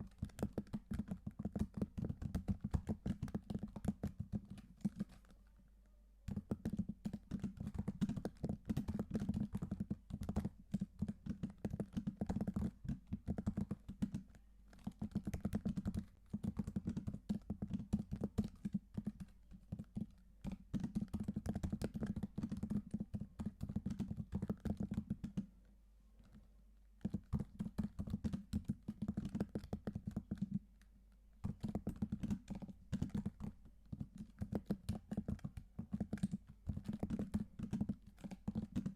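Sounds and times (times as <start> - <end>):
computer keyboard typing: 0.0 - 5.4, 6.3 - 25.5, 27.0 - 30.6, 31.4 - 38.9.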